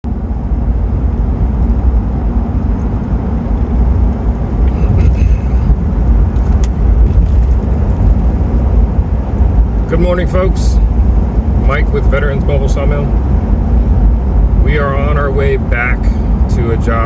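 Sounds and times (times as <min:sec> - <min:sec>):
vehicle driving on road: 0:00.0 - 0:17.0
light rattles and clicks: 0:04.1 - 0:08.4.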